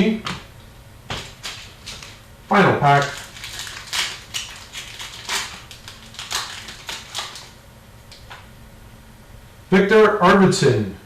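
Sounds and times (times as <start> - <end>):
foil wrapper crinkling and tearing: 1.1 - 2.2, 2.8 - 8.3.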